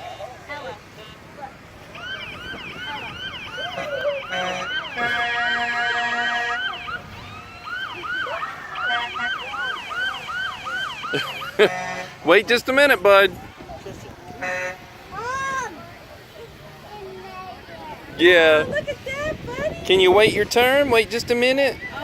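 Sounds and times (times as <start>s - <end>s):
siren on fast yelp: 2.0s - 11.6s
horn blast: 3.6s - 7.2s.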